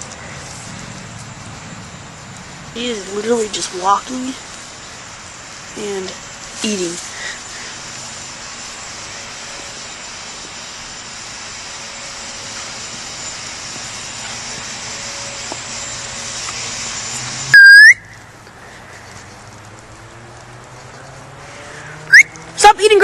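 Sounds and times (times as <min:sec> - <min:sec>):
outdoor background hiss: 0:00.0 - 0:23.0
loud short whistle: 0:17.5 - 0:18.2, 0:22.1 - 0:22.4.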